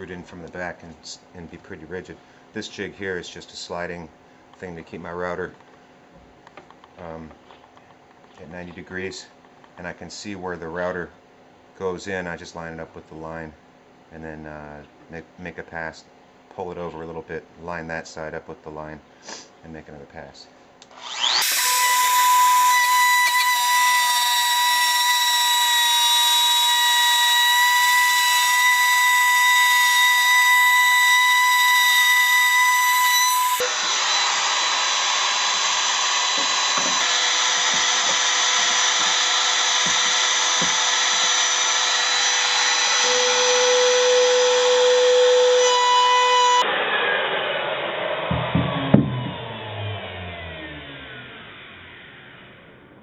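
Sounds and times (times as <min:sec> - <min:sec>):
wood router cutting plywood: 0:20.9 - 0:52.6.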